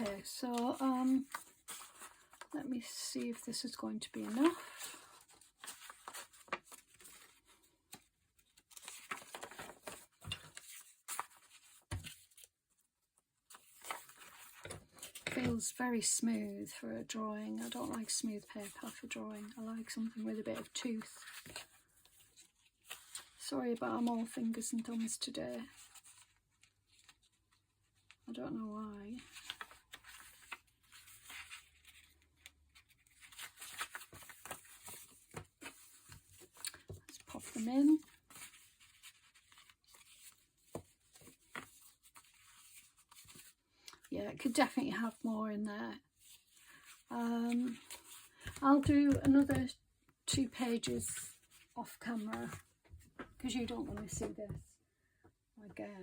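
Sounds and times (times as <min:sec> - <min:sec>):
paper rustling: 0:00.0 - 0:12.6, 0:13.4 - 0:15.6, 0:17.5 - 0:28.2, 0:29.2 - 0:43.6, 0:46.2 - 0:49.7, 0:50.3 - 0:54.4
paper rustling and tearing: 0:04.2 - 0:12.5.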